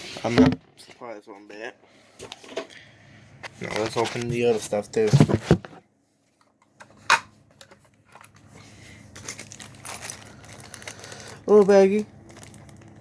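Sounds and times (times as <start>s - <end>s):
plastic bag crinkling: 8.1s - 13.0s.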